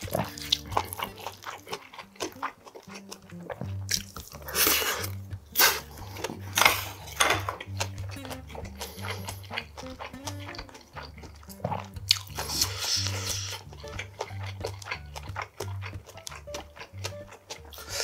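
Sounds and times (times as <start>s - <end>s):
background music with bassline: 0.0s - 18.0s
person chewing and crunching: 0.0s - 18.0s.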